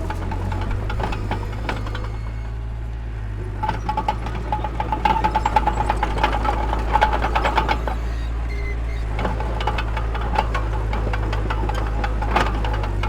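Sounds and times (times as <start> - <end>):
rapid clanking and rattling: 0.0 - 2.6, 3.5 - 13.0
heavy diesel machinery drone: 0.0 - 13.0.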